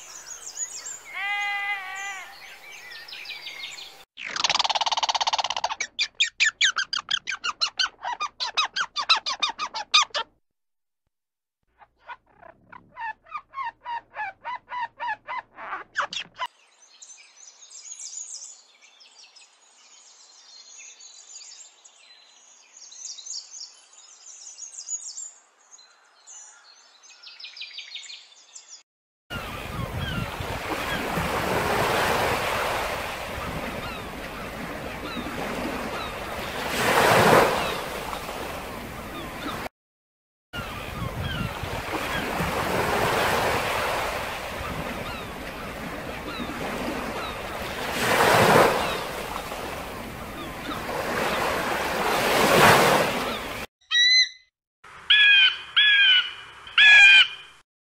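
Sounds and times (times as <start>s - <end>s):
small birds chirping: 0.0s - 10.3s
squirrel chattering call: 4.2s - 10.3s.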